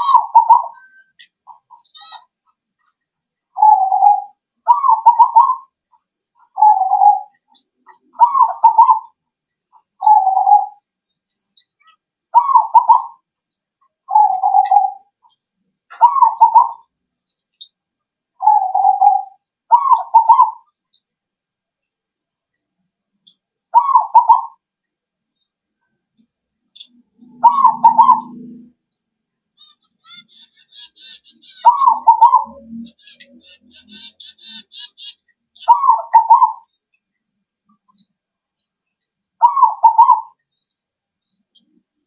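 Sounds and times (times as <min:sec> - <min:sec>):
dove cooing: 0:00.0 - 0:02.2, 0:03.6 - 0:05.7, 0:06.4 - 0:09.2, 0:10.0 - 0:10.8, 0:12.4 - 0:13.2, 0:14.1 - 0:15.1, 0:15.9 - 0:16.9, 0:18.4 - 0:20.7, 0:23.8 - 0:24.6, 0:27.2 - 0:28.8, 0:29.6 - 0:36.7, 0:39.4 - 0:40.4.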